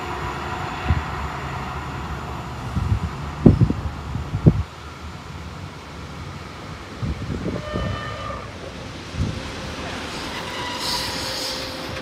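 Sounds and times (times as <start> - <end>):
electric train running: 0.0 - 12.0
train horn blast: 7.4 - 8.6, 9.9 - 12.0.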